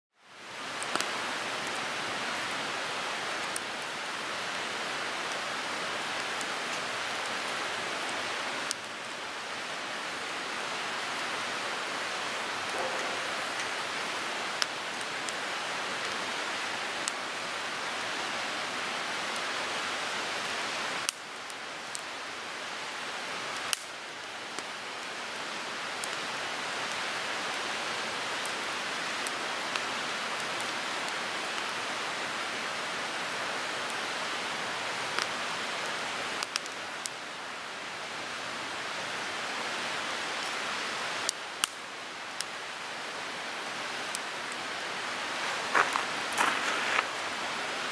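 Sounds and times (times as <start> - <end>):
wood fire crackling pops: 0.8 - 1.8, 12.7 - 15.4, 23.6 - 24.7, 36.4 - 36.8, 41.3 - 42.5, 45.3 - 47.3
flames hissing: 44.1 - 47.9.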